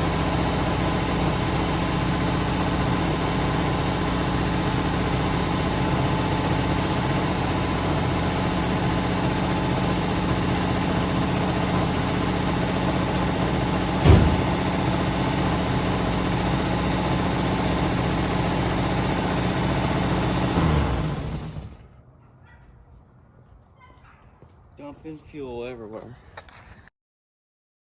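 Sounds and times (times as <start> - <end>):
car engine idling: 0.0 - 21.9
loud thump: 14.0 - 14.8.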